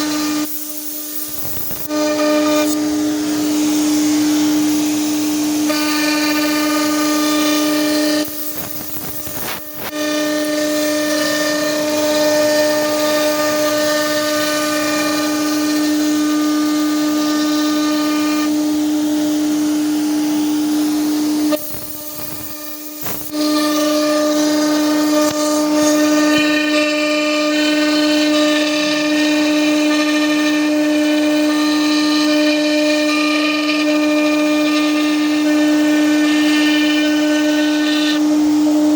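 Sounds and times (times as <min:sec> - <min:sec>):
cutting hiss: 0:00.0 - 0:17.2, 0:19.9 - 0:28.1
cnc machine spindle whine: 0:00.0 - 0:38.9.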